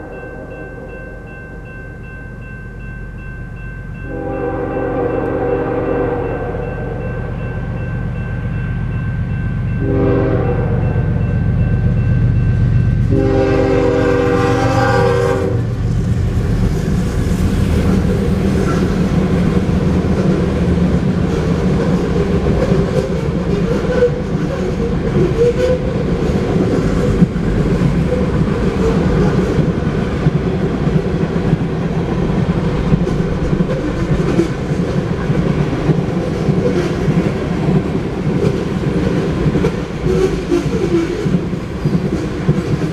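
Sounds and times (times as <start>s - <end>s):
train horn blasts: 0.0s - 1.7s, 4.0s - 7.4s, 9.8s - 11.2s, 13.0s - 15.9s
diesel locomotive rumble: 2.0s - 42.9s
freight cars rolling past: 15.5s - 40.5s.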